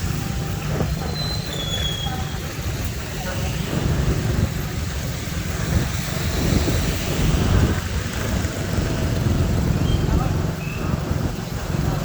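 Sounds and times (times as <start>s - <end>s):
vehicle engine and road rumble: 0.0s - 12.0s
wind buffeting microphone: 2.6s - 12.0s.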